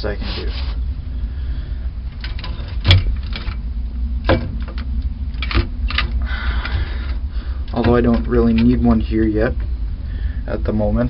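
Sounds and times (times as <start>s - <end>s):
low rumble: 0.0s - 11.0s
handling clicks and knocks: 7.6s - 8.9s.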